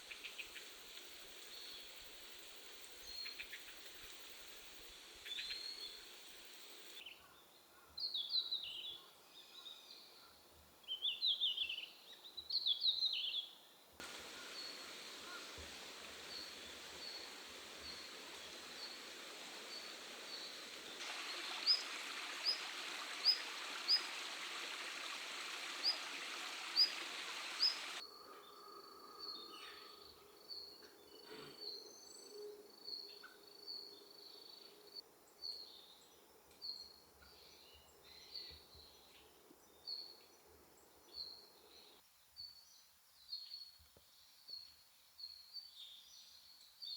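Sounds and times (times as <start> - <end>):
background hiss: 0.0 - 7.1, 14.0 - 30.8
twittering bird song: 12.6 - 34.6.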